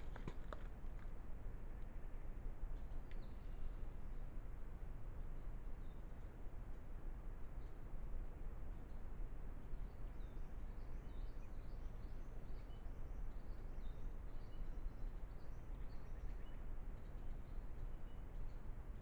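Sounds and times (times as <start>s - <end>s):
small birds chirping: 9.8s - 19.0s.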